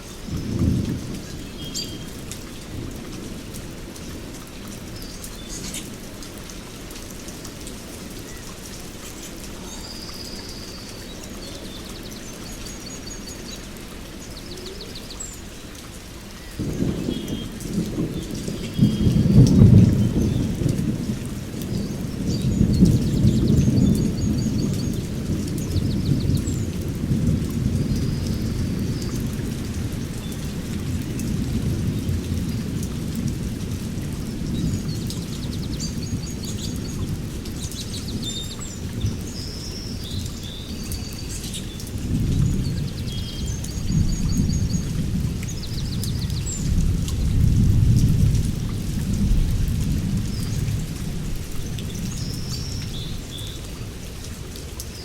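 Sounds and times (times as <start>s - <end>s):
steady rain: 0.0s - 55.0s
songbirds chirping: 0.1s - 32.6s, 34.2s - 48.1s
low rolling thunder: 0.2s - 2.1s, 16.6s - 40.2s, 41.9s - 53.3s.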